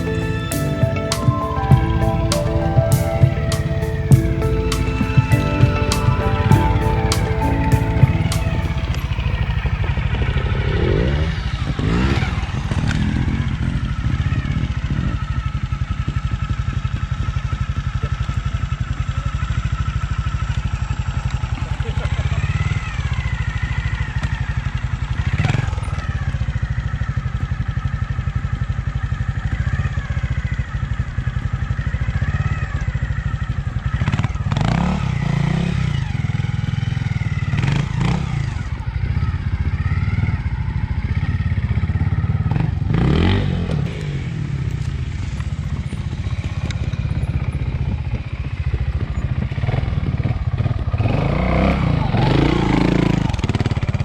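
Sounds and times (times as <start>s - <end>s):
motorcycle engine at low revs: 8.9s - 54.0s.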